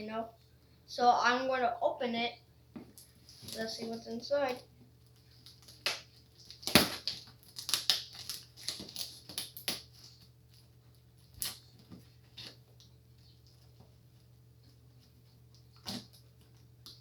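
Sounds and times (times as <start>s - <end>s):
packaging torn and crinkled: 5.1s - 10.7s, 11.4s - 11.7s.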